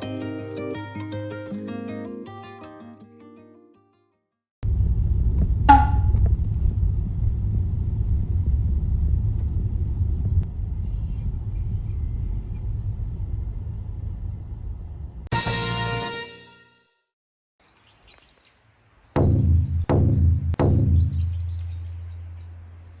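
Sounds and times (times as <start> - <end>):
steady low rumble: 4.6 - 15.2.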